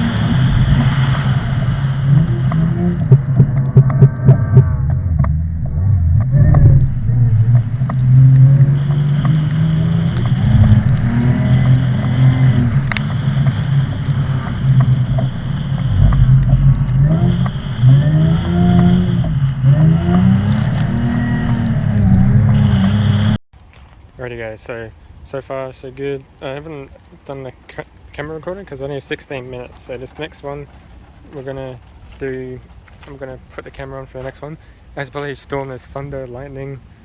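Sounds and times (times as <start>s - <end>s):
car engine revving: 0.0s - 23.4s.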